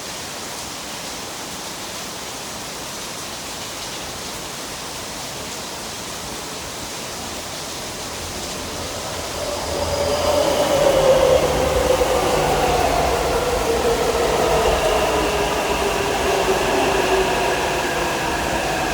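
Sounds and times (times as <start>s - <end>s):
heavy rain hissing: 6.2s - 18.9s
electric train slowing: 7.1s - 18.9s.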